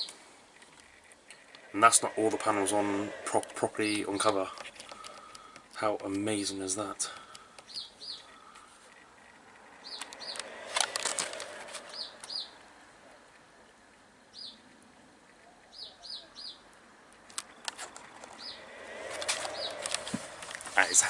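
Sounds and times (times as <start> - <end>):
small bird chirping: 7.6 - 10.5, 11.8 - 12.6, 14.3 - 16.7, 17.4 - 19.9.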